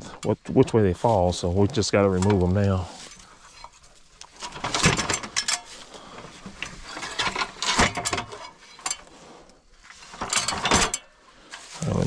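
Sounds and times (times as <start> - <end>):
metallic clicking and rattling: 2.1 - 9.1, 9.9 - 11.6.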